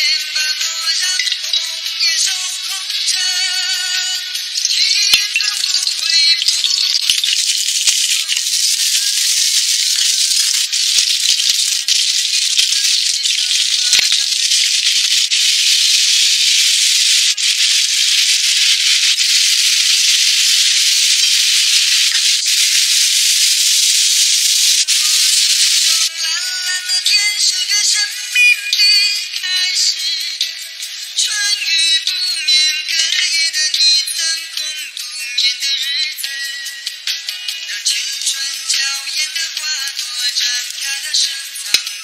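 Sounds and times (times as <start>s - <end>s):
food sizzling in hot oil: 4.5s - 26.1s.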